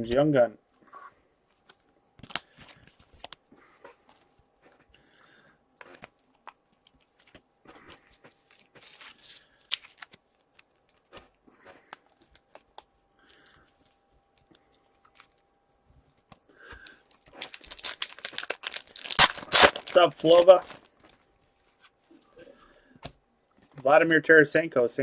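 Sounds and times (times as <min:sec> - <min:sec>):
wrappers rustling and tearing: 0:05.9 - 0:11.4, 0:16.8 - 0:22.0.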